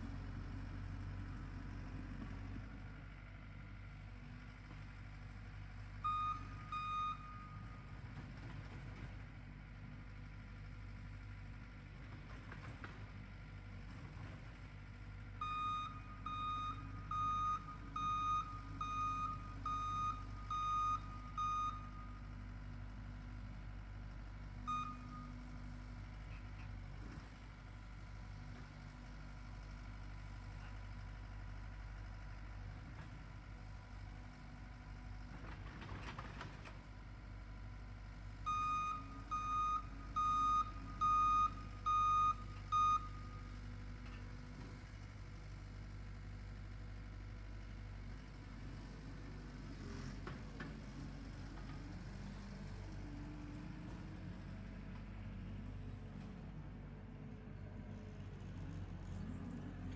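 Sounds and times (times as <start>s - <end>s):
reversing alarm beeping: 6.1s - 7.7s, 15.4s - 22.2s, 24.7s - 25.3s, 38.5s - 43.4s.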